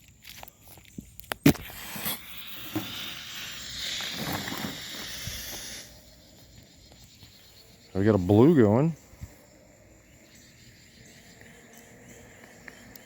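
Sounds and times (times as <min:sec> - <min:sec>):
smoke grenade hissing: 0:01.4 - 0:06.3.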